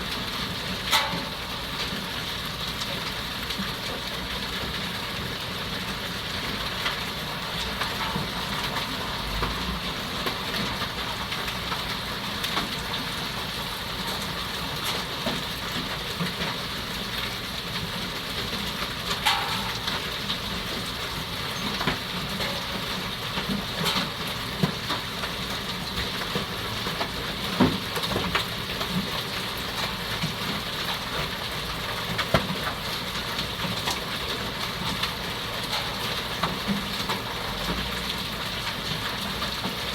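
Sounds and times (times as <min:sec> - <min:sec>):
hail and rain falling: 0:00.0 - 0:39.9
hailstones striking hard surfaces: 0:17.9 - 0:39.8.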